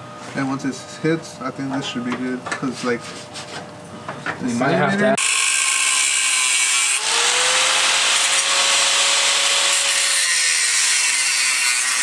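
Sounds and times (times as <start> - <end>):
power tool motor whine: 5.2 - 11.2
abrasive wheel cutting sheet metal: 5.2 - 12.0.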